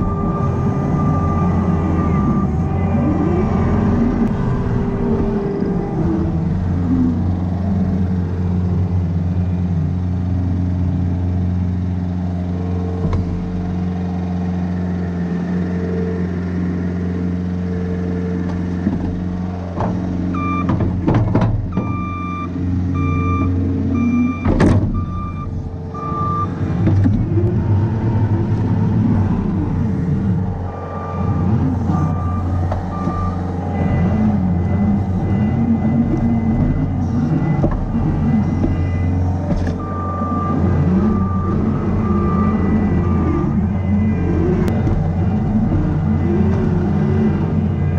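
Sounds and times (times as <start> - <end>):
backup alarm beeping: 0.0 - 6.0, 20.3 - 20.8, 21.7 - 26.7, 27.3 - 47.2
diesel engine running: 0.0 - 47.9.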